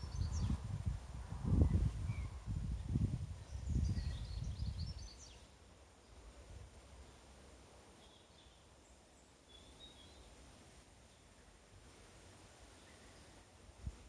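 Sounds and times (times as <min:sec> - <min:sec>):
small birds chirping: 0:00.0 - 0:00.6, 0:01.6 - 0:06.4, 0:07.9 - 0:11.6.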